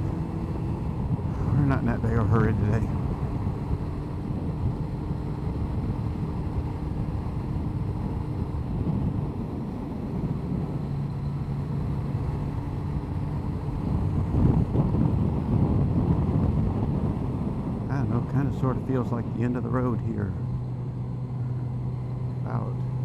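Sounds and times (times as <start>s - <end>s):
wind rush on microphone: 0.0s - 23.0s.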